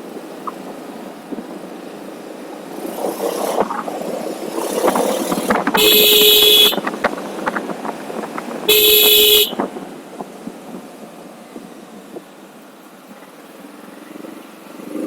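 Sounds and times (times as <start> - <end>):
road traffic noise: 0.0 - 15.0
vehicle horn honking: 5.8 - 6.9, 8.7 - 9.7.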